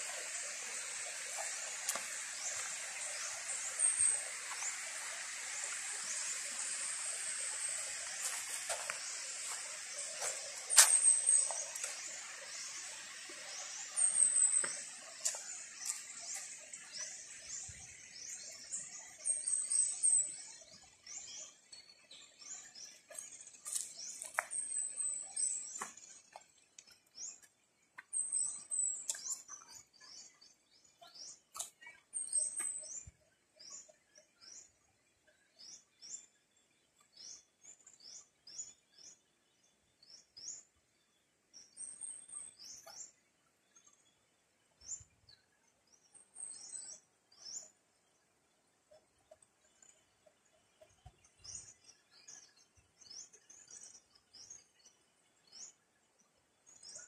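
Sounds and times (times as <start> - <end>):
faint hiss: 0.0 - 20.6
birds chirping: 0.0 - 34.8.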